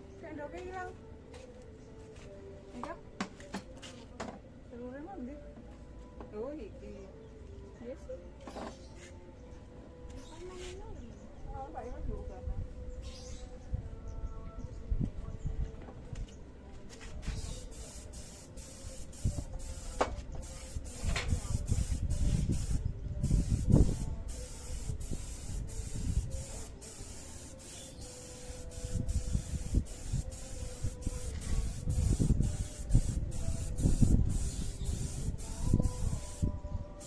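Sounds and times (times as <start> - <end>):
spray gun hissing: 17.4 - 36.5.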